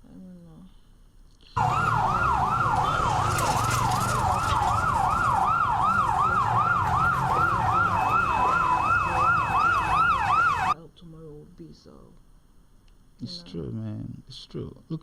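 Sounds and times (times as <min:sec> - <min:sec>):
fainter second siren: 0:01.6 - 0:10.8
siren yelping: 0:01.6 - 0:10.8.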